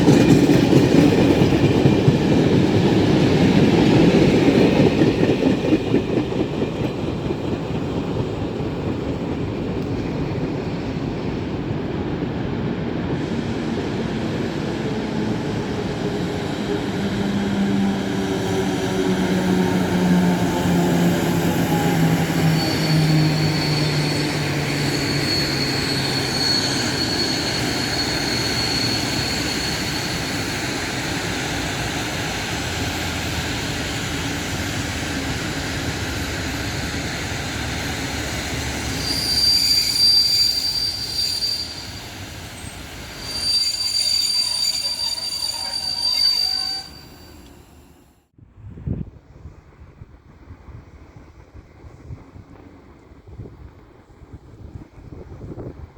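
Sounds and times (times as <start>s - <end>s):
train running hum: 0.0s - 48.1s
wheels rumbling on rail: 0.0s - 55.9s
high-pitched wheel squeal: 21.6s - 30.5s, 38.8s - 48.1s.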